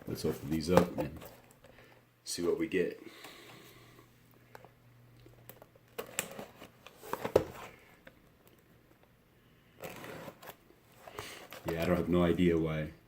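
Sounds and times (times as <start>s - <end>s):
card box clicks and rustles: 5.5s - 8.0s.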